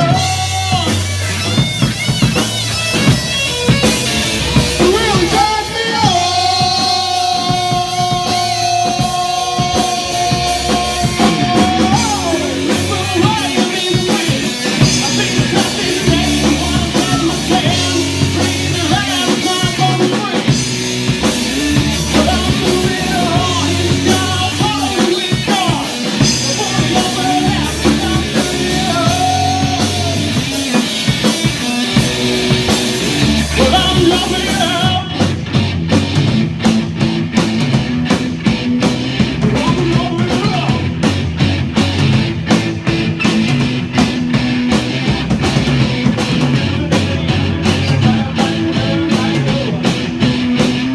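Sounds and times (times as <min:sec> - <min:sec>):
person singing: 0:00.0 - 0:01.6, 0:04.3 - 0:35.3, 0:46.3 - 0:50.9
drum kit: 0:00.0 - 0:50.9
electric guitar: 0:00.0 - 0:50.9.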